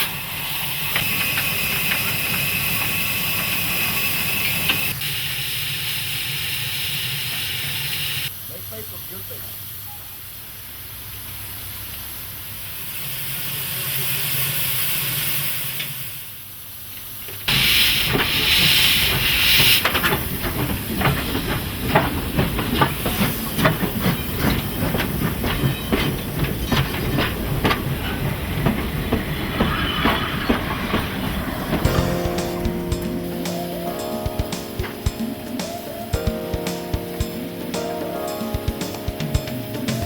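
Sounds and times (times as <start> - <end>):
loud blast of steam: 0.0 - 36.1
steam hissing: 0.0 - 40.0
metallic clanks and knocks: 18.0 - 33.2.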